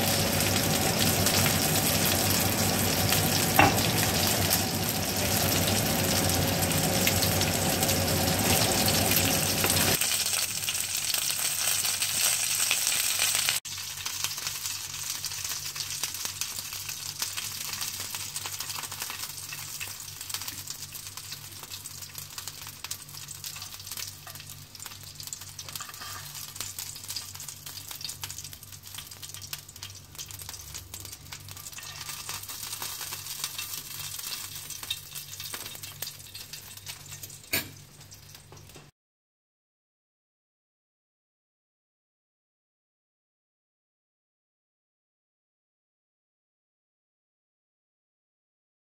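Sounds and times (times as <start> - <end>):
quails sizzling in hot oil: 0.0 - 38.9.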